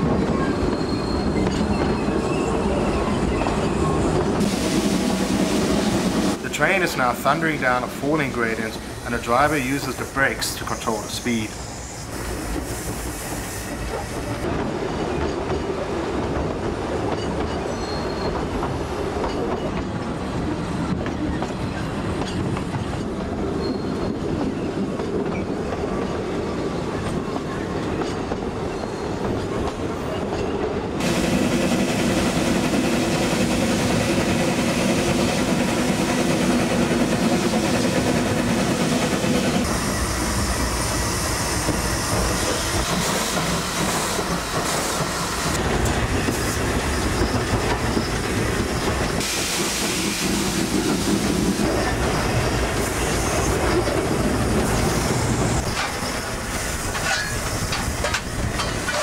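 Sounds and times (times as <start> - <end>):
train wheels clattering over rails: 12.3 - 59.0.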